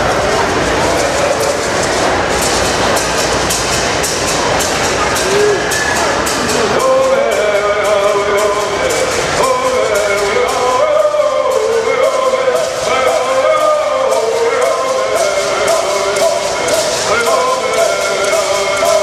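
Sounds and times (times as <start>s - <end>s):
gourd rattles shaking: 0.0s - 19.0s
men singing in unison: 6.7s - 19.0s.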